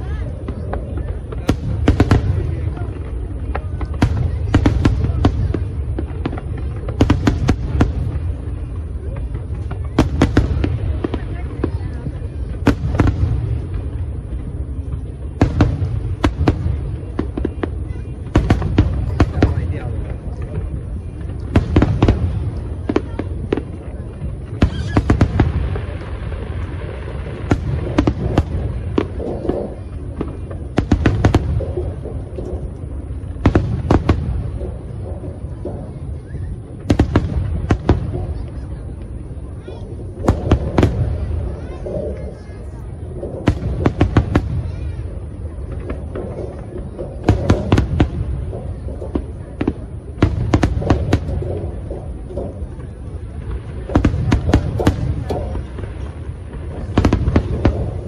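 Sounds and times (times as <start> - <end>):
fireworks bangs: 0.0 - 58.0
low rumble of fireworks bursts: 0.0 - 58.0.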